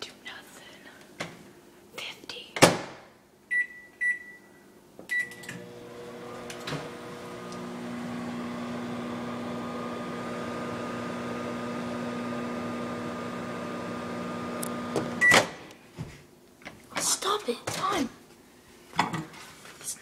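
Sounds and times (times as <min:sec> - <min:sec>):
microwave oven humming: 0:05.1 - 0:15.7
microwave keypad beeping: 0:15.2 - 0:15.5.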